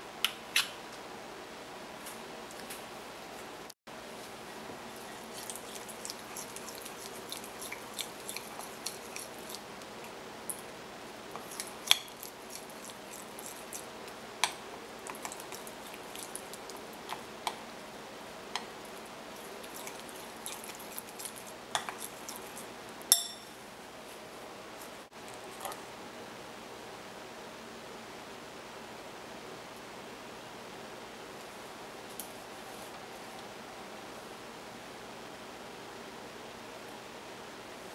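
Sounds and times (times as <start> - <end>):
metal spoon clinking on dish: 23.1 - 23.6.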